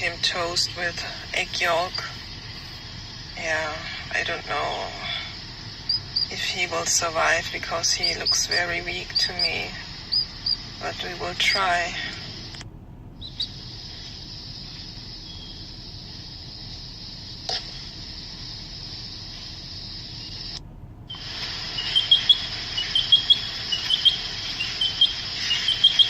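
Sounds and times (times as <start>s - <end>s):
high-pitched hiss: 0.0s - 12.6s, 13.2s - 26.0s
baby bird cheeping: 4.9s - 12.6s, 13.2s - 16.3s, 20.0s - 26.0s.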